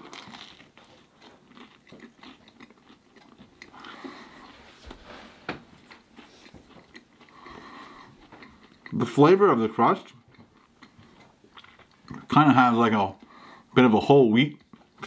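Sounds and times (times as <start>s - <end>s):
crunching pizza crust: 0.0s - 9.4s.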